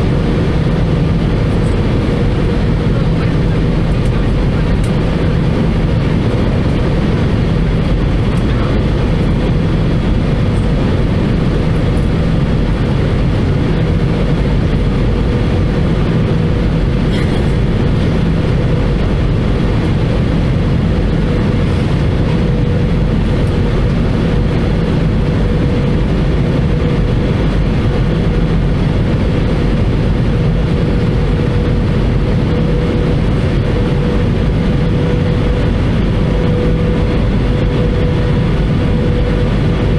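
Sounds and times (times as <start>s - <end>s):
airplane cabin roar: 0.0s - 39.9s.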